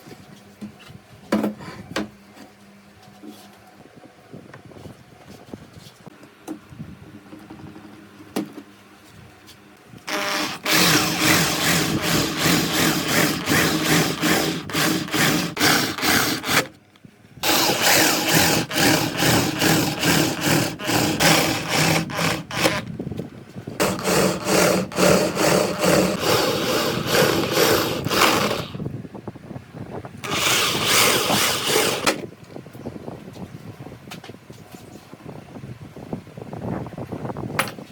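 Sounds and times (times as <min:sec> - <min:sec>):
woodworking tool cutting wood: 0:10.1 - 0:16.7, 0:17.4 - 0:22.9, 0:23.8 - 0:28.8, 0:30.2 - 0:32.2.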